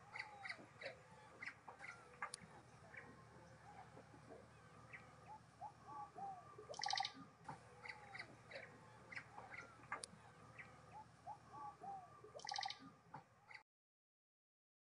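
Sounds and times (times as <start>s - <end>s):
faint bird chirps: 0.0s - 13.6s
harsh bird call: 4.5s - 12.9s.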